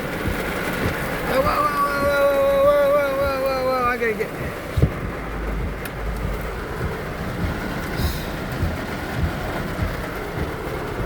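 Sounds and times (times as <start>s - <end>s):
heavy rain on a car: 0.0s - 11.0s
low thuds: 0.0s - 11.0s.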